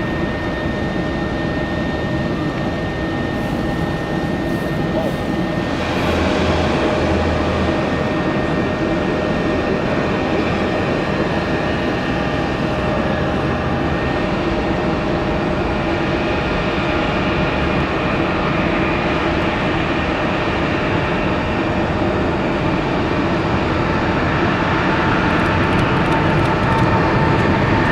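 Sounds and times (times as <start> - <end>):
low hum: 0.0 - 10.8
jet aircraft rumble: 0.0 - 27.9.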